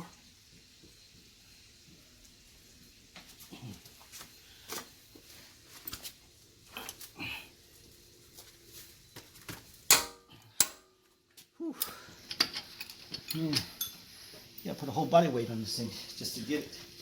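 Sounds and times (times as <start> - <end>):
hand tools clicking on metal: 9.9 - 10.9, 11.8 - 14.0.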